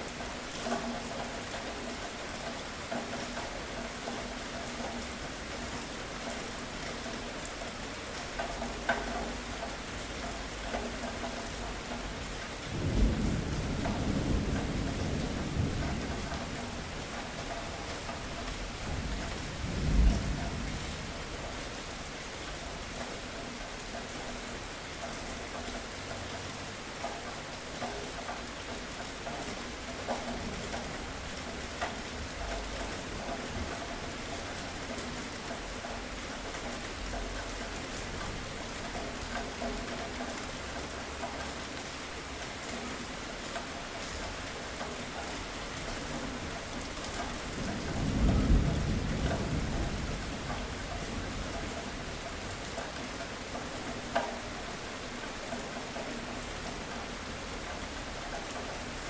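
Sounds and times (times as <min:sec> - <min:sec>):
steady rain: 0:00.0 - 0:59.0
thunder rumble: 0:12.7 - 0:17.5.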